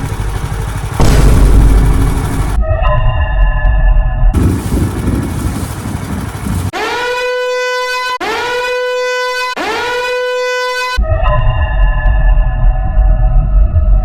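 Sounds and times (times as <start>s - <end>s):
horn blasts rising in pitch: 6.8s - 11.2s.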